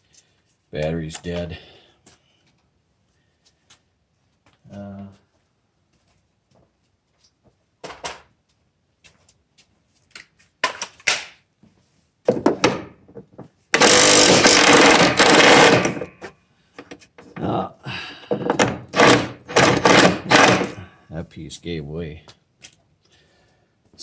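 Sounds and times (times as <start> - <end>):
metal parts and tools knocking: 12.3 - 17.4, 18.3 - 20.8
cordless power tool running: 13.8 - 16.1, 18.5 - 20.8.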